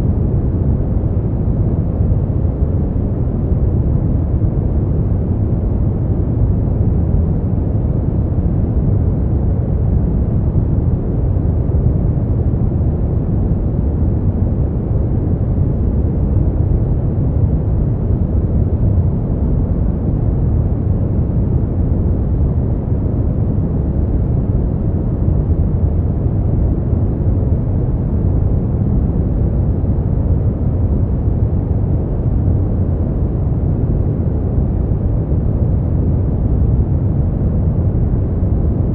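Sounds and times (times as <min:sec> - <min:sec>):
deep muffled white noise: 0:00.0 - 0:38.9.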